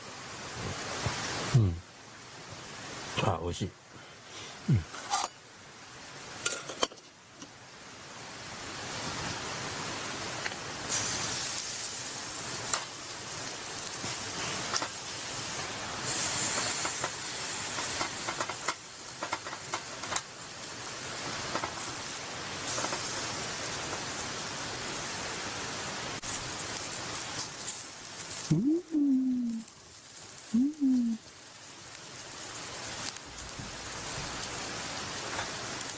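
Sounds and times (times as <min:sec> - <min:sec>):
meat sizzling on a grill: 0:07.9 - 0:35.9.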